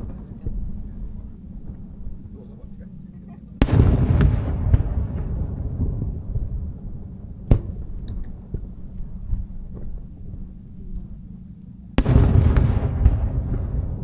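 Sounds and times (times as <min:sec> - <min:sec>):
fireworks bursting with bangs: 0:03.6 - 0:09.8, 0:12.0 - 0:14.0
faint cracks: 0:07.6 - 0:11.8.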